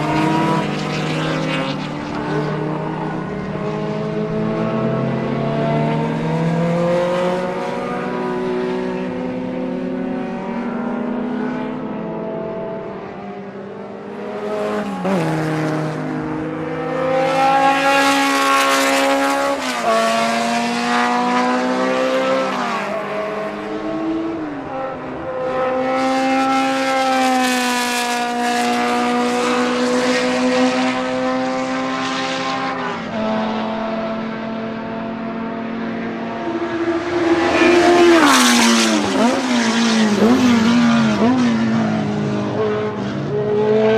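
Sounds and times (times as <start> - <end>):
racing engine changing gears: 14.4 - 43.9.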